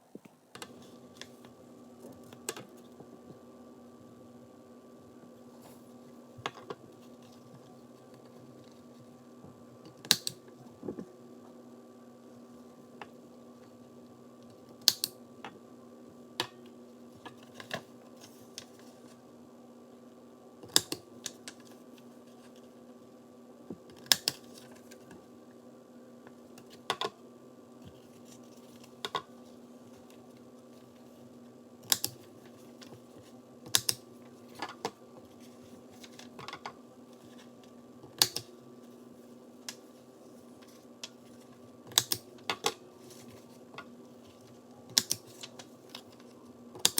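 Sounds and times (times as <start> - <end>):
faint steady hum: 0.0 - 46.9
paper punch clicks: 41.9 - 42.2.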